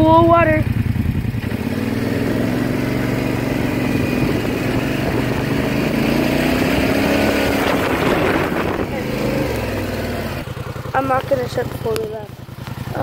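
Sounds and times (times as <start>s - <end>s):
small vehicle engine running: 0.0s - 13.0s
wheels splashing through water: 5.1s - 13.0s.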